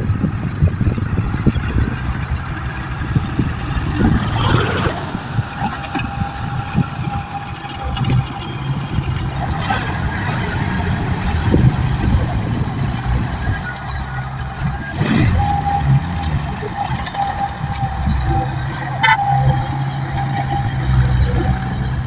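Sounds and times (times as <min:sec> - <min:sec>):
truck engine rumbling: 0:00.0 - 0:22.0.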